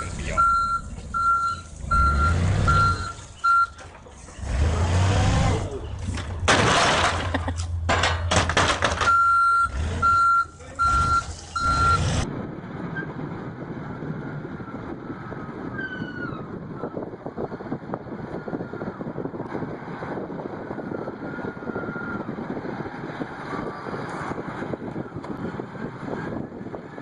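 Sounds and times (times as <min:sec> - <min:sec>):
vehicle reversing alarm beeping: 0:00.0 - 0:03.8, 0:09.0 - 0:12.2
machine and vehicle rumble: 0:00.0 - 0:27.0.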